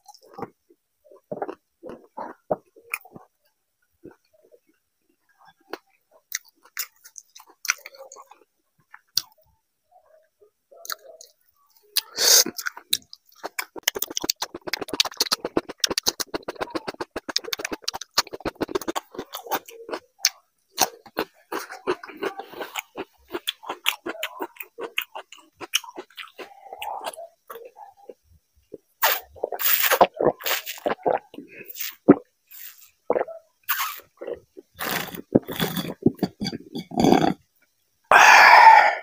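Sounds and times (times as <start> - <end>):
wet chewing and mouth smacking: 0.0 - 3.4, 5.4 - 9.4, 12.0 - 37.4.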